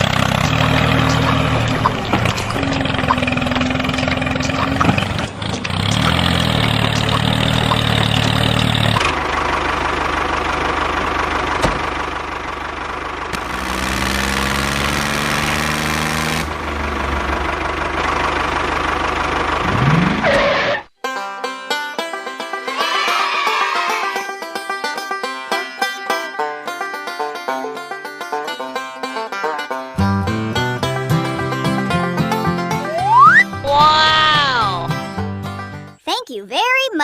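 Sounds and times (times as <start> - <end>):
motor running steadily: 0.0 - 20.1
music: 21.0 - 36.0.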